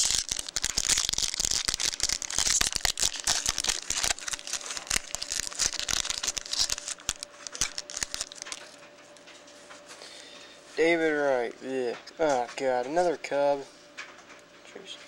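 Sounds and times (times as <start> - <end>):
foil wrapper crinkling and tearing: 0.0 - 8.8.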